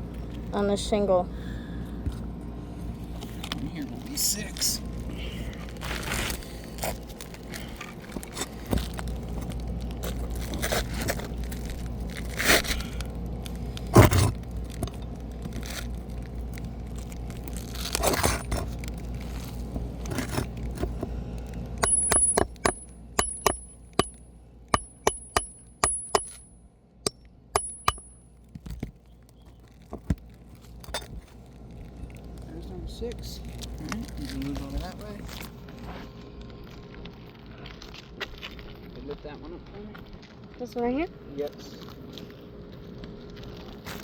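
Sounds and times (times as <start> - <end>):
metal tool scraping under shingles: 14.0 - 15.1, 17.8 - 18.8, 20.0 - 21.1, 21.8 - 26.5, 27.6 - 28.2
sharp metallic taps: 21.8 - 24.2, 24.8 - 26.5, 27.1 - 28.2.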